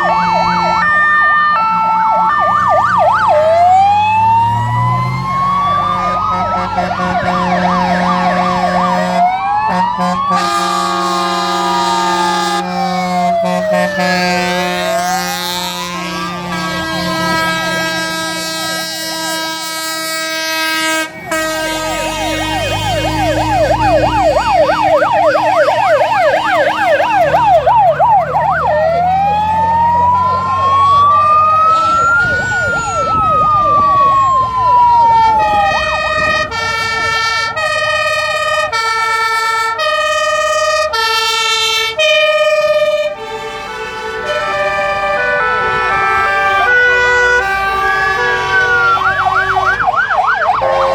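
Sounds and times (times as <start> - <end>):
fire engine sirens: 0.0 - 50.9
truck engines rumbling: 0.0 - 50.9.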